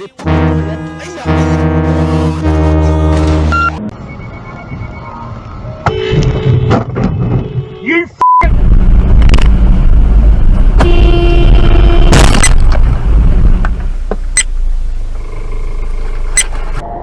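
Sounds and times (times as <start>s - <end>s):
road traffic rumble: 0.0s - 17.0s
car horn blowing: 0.2s - 3.8s, 5.9s - 7.9s, 10.8s - 12.2s.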